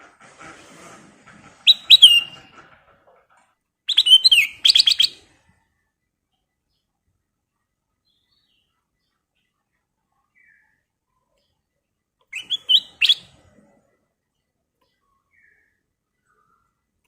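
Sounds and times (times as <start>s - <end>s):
bird singing whistled phrases: 1.7s - 2.4s, 3.9s - 5.2s, 12.3s - 13.3s.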